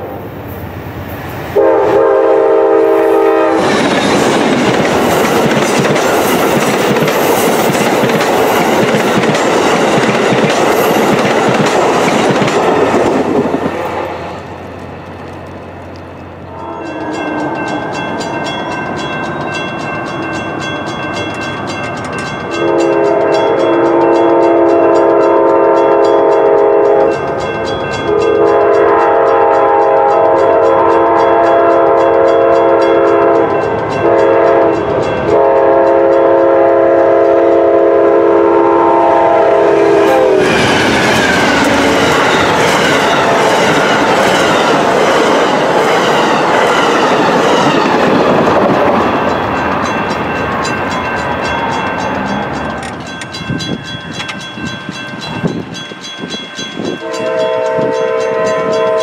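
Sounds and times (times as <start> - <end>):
train passing at speed: 0.0 - 59.0
train air horn: 1.6 - 3.8, 16.5 - 17.7, 22.6 - 27.2, 28.1 - 40.9, 57.0 - 59.0
crossing bell ticking: 16.1 - 36.3, 47.0 - 59.0.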